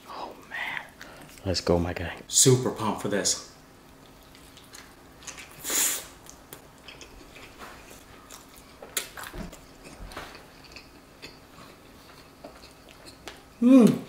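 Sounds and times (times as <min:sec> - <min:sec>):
person chewing food: 0:06.2 - 0:13.6.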